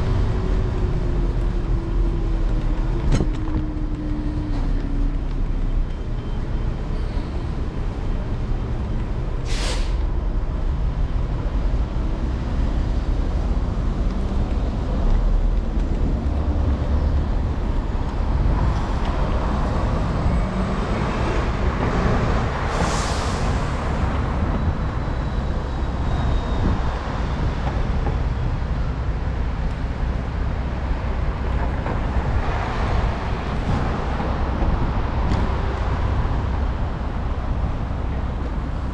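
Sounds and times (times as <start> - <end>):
city street traffic rumble: 0.0 - 38.9
short sharp hisses: 9.5 - 10.0
vehicles passing: 10.0 - 38.9.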